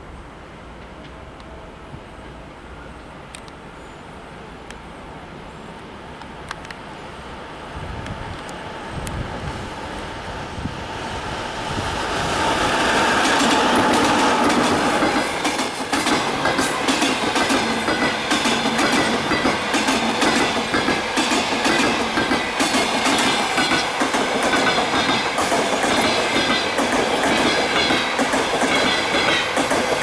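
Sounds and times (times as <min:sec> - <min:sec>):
passenger train passing: 0:00.0 - 0:30.0
train wheels clickety-clack: 0:07.7 - 0:30.0.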